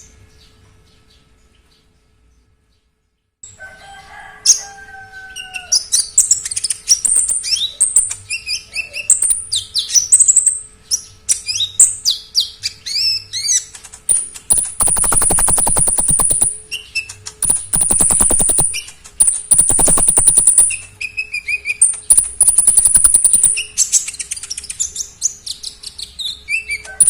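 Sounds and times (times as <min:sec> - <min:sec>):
songbird singing: 0:05.4 - 0:27.0.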